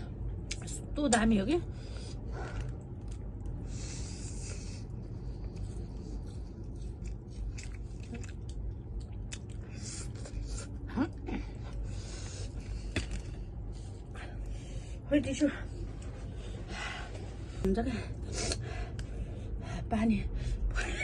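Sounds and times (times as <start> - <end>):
low steady hum: 0.0 - 21.0
close chewing: 4.4 - 12.0.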